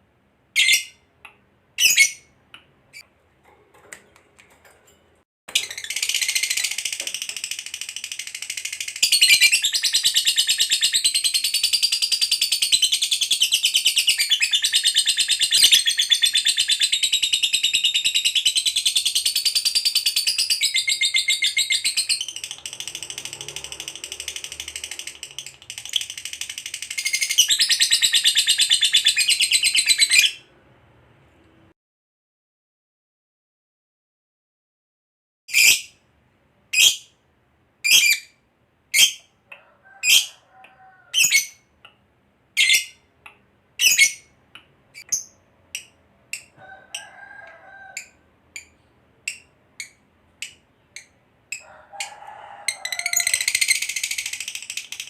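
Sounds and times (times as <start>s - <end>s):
lovebird chattering trills: 5.6s - 30.4s, 52.9s - 55.0s.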